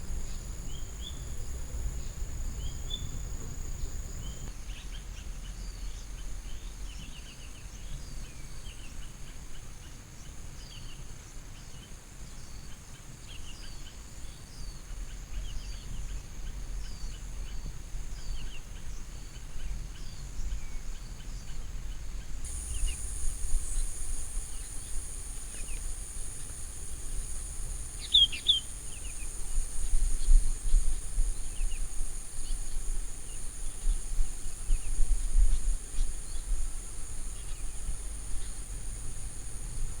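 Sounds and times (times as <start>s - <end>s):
higher insect tone: 0.0s - 4.5s, 22.5s - 40.0s
small birds chirping: 0.0s - 4.5s, 22.5s - 40.0s
high-pitched insect drone: 22.5s - 40.0s.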